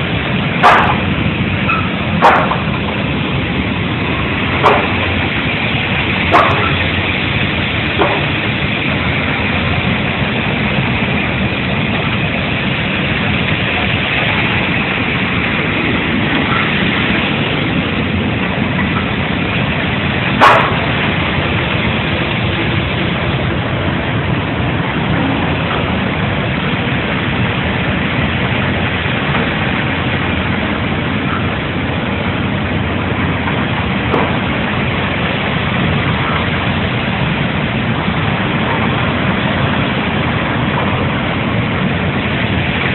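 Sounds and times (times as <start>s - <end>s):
dryer machinery running: 0.0s - 42.9s.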